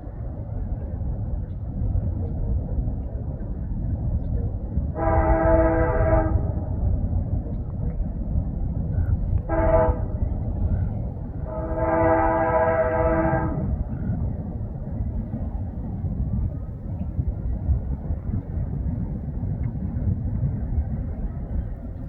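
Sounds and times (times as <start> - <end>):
low rumble of running train: 0.0 - 22.0
locomotive air horn blasts: 5.0 - 6.6, 9.5 - 10.3, 11.4 - 13.8.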